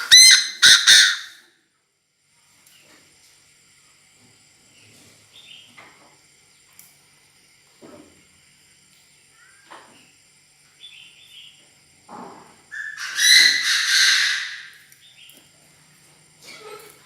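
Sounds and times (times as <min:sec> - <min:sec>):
francolin calling: 0:00.0 - 0:01.4.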